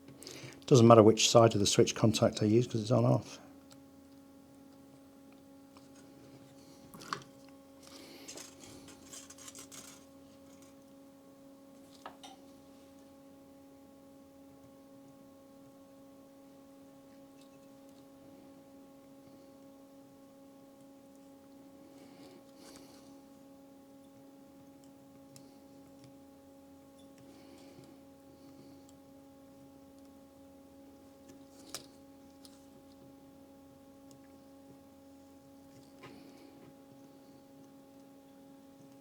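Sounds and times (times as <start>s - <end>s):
steady low hum: 0.0s - 39.0s
rustling of small parts: 7.8s - 10.8s.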